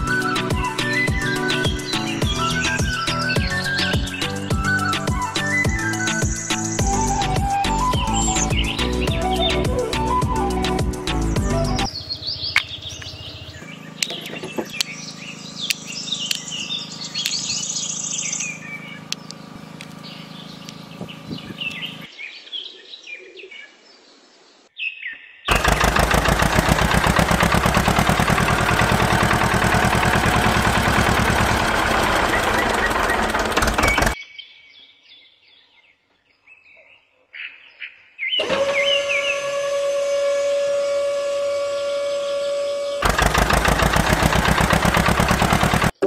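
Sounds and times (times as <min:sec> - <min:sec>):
small birds chirping: 0:00.0 - 0:10.2, 0:11.3 - 0:25.9, 0:27.2 - 0:39.4
rapid engine-like chugging: 0:25.5 - 0:34.2, 0:43.0 - 0:46.0.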